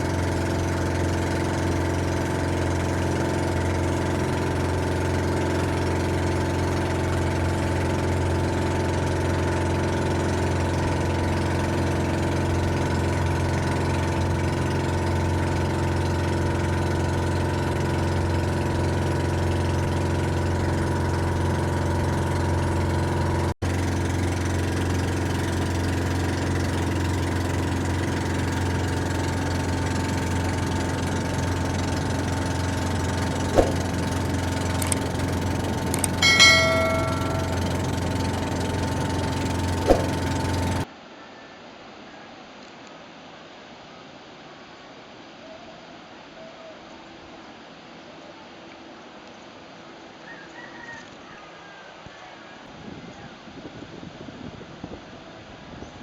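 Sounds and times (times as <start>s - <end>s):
steady engine hum: 0.0s - 40.9s.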